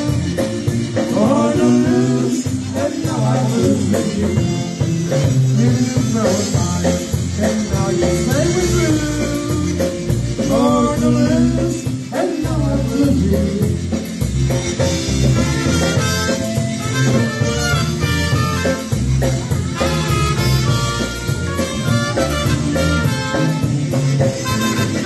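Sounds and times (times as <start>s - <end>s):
bass and drum beat: 0.0s - 25.0s
live dance band playing: 0.0s - 25.0s.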